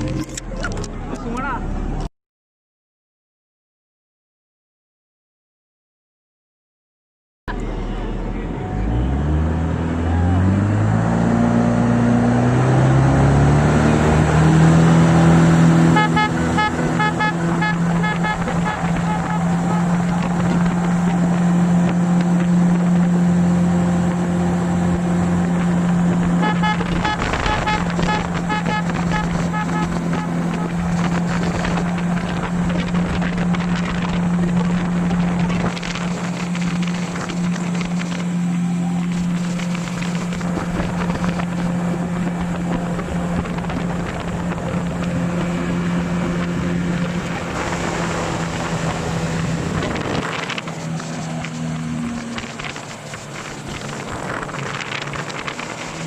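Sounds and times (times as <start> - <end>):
boat engine running: 0.0 - 2.1, 7.5 - 56.0
wind buffeting microphone: 23.9 - 38.4, 39.0 - 56.0.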